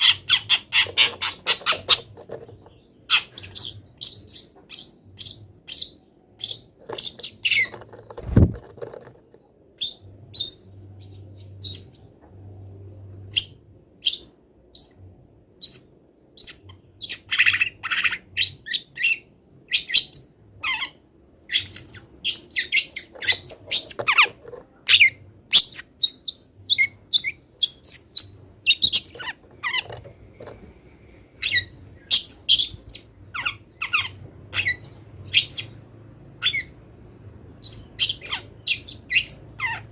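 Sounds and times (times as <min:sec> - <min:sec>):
bird singing high chirps: 0:37.6 - 0:39.9.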